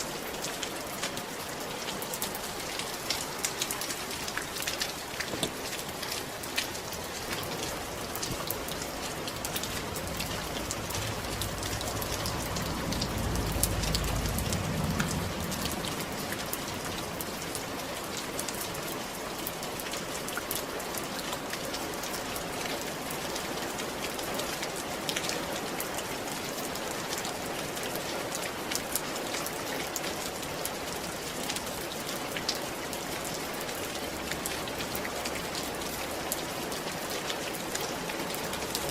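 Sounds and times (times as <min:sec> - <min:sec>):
rain on a roof: 0:00.0 - 0:38.9
low rumble: 0:09.2 - 0:17.5.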